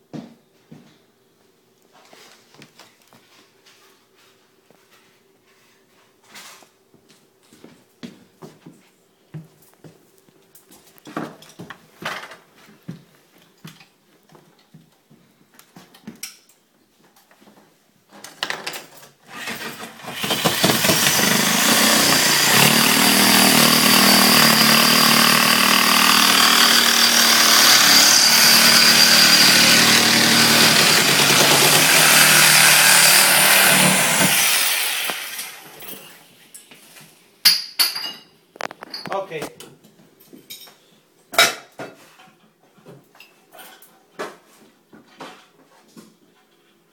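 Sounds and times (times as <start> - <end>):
electric power saw running: 19.3 - 35.8.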